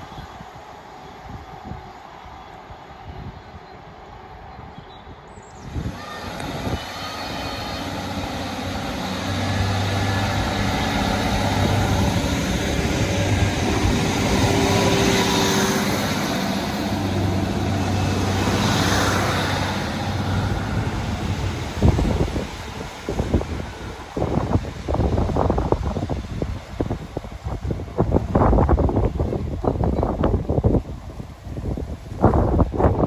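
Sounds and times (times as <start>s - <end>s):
train running past: 0.0s - 33.0s.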